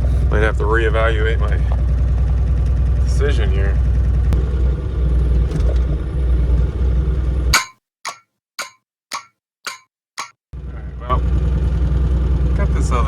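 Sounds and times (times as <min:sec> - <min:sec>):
diesel engine running: 0:00.0 - 0:07.5, 0:10.6 - 0:13.0
short sharp clanks: 0:07.6 - 0:10.4.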